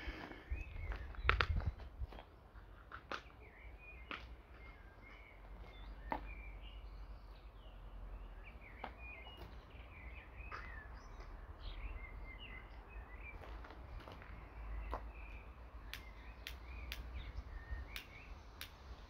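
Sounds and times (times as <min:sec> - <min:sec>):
songbirds chirping: 0:00.0 - 0:19.0
sharp clicks: 0:15.8 - 0:19.0.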